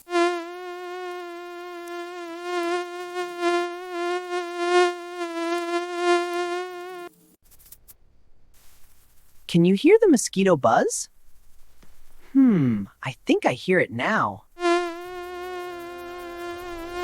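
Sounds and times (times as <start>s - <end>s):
mosquito buzzing whine: 0.0s - 7.1s, 14.6s - 17.0s.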